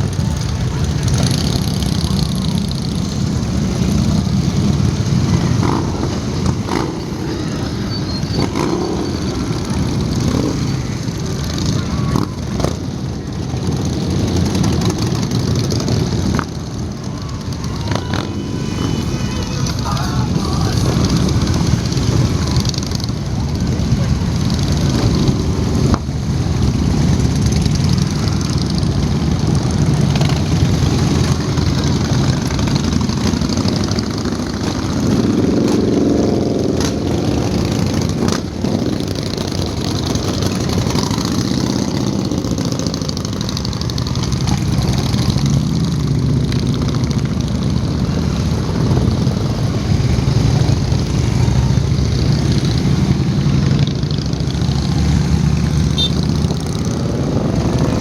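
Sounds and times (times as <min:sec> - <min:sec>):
motorcycle engines running: 0:00.0 - 0:58.0.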